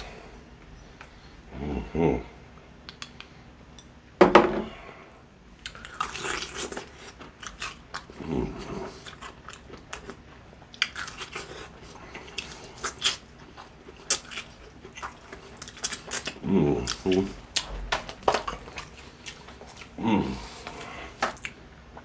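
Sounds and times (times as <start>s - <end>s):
quiet chewing: 5.6s - 22.0s.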